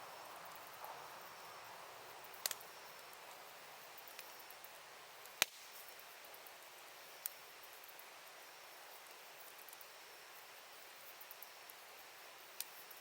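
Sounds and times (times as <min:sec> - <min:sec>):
campfire hissing: 0:00.0 - 0:13.0
wood crackling and popping: 0:02.2 - 0:09.9.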